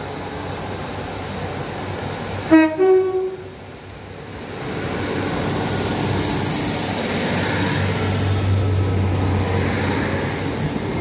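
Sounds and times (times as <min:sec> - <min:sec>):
train running and engine hum: 0:00.0 - 0:11.0
two-tone train horn: 0:02.5 - 0:03.5.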